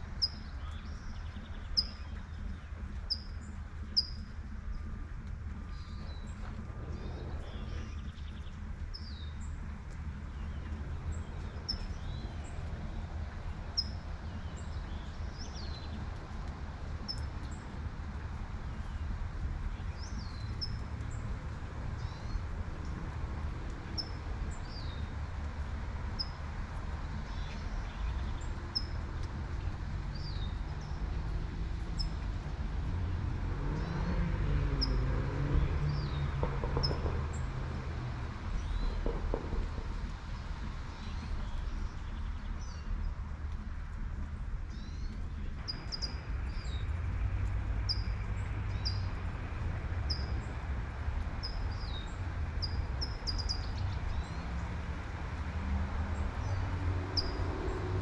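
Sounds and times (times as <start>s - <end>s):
low traffic rumble: 0.0s - 58.0s
small birds chirping: 0.1s - 33.2s, 38.4s - 55.5s, 56.2s - 58.0s
passing car: 30.7s - 41.4s, 53.9s - 58.0s.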